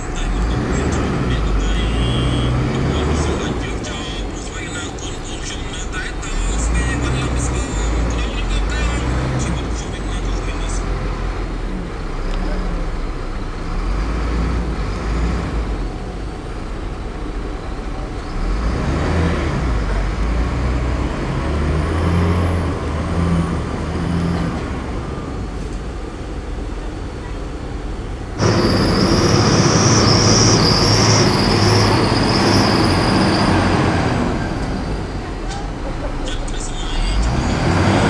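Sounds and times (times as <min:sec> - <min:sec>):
heavy machinery diesel engines: 0:00.0 - 0:38.0
high wavering squeal: 0:28.4 - 0:34.6.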